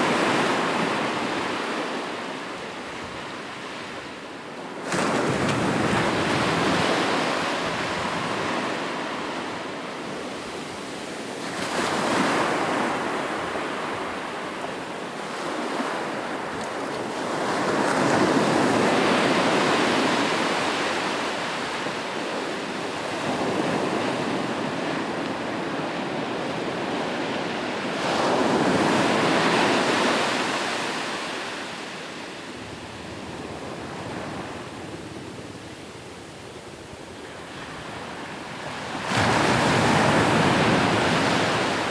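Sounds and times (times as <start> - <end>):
sea waves breaking on shore: 37.5 - 41.9.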